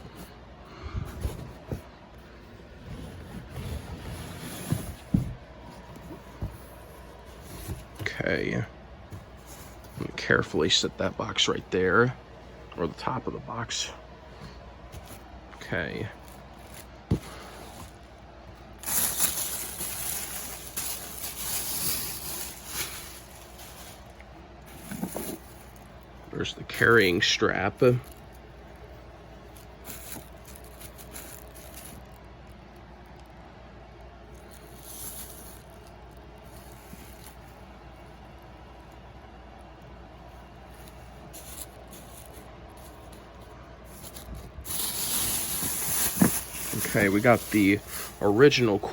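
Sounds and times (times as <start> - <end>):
cardboard scraping and rustling: 1.1 - 8.2, 9.1 - 10.7, 15.9 - 26.0, 40.6 - 48.9
packing material rustling: 14.2 - 32.6, 34.3 - 48.9.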